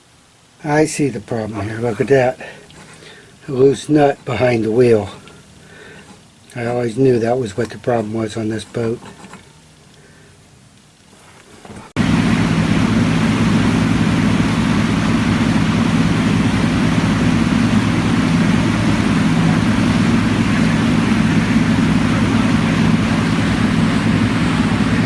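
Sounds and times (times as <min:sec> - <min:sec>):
bilge pump motor humming: 0:12.0 - 0:25.0.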